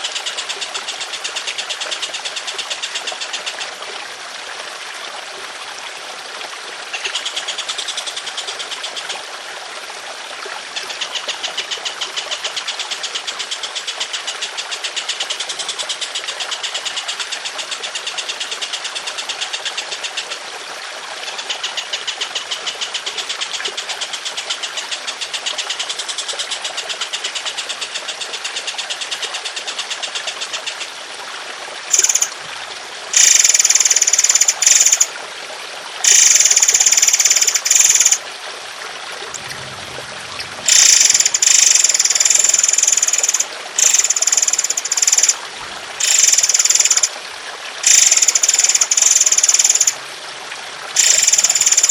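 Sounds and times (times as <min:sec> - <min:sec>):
trickling water: 0:00.0 - 0:51.9
songbird trilling: 0:31.9 - 0:32.3, 0:33.2 - 0:35.1, 0:36.1 - 0:38.2, 0:40.4 - 0:45.4, 0:46.0 - 0:47.1, 0:47.8 - 0:50.0, 0:51.0 - 0:51.9
high bird calls: 0:39.2 - 0:45.4.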